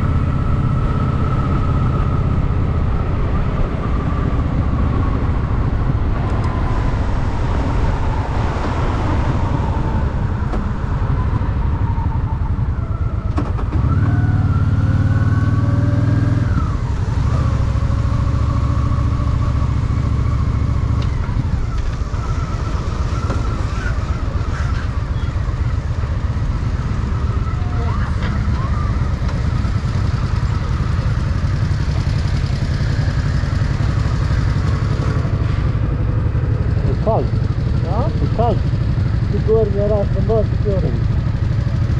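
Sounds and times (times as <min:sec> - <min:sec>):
road and wind noise: 0:00.0 - 0:41.9
motorcycle engine running: 0:24.5 - 0:41.9.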